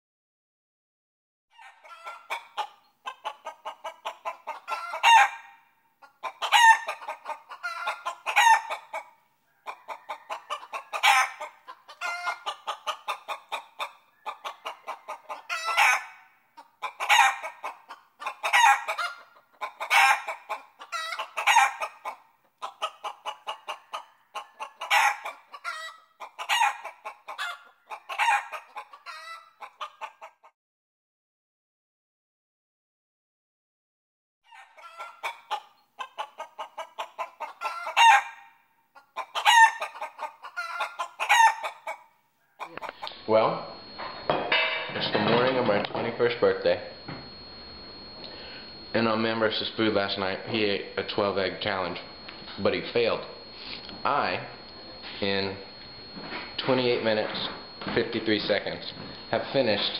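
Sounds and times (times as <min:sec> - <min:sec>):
chicken cackling: 0:01.5 - 0:30.5, 0:34.5 - 0:44.3, 0:46.1 - 0:59.9.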